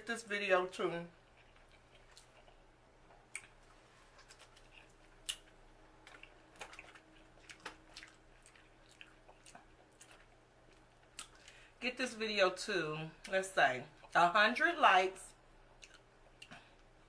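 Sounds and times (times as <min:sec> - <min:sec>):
person chewing wetly: 0:01.2 - 0:11.7, 0:15.7 - 0:17.0.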